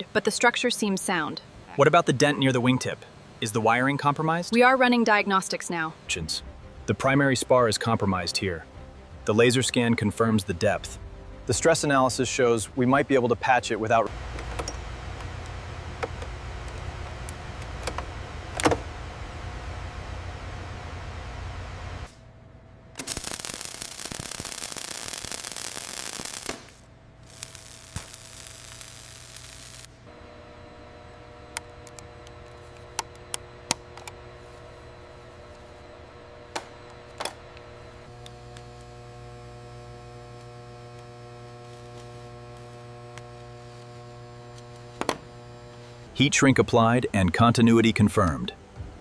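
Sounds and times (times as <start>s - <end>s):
electrical hum: 8.5s - 49.0s
loud hiss: 23.0s - 30.0s.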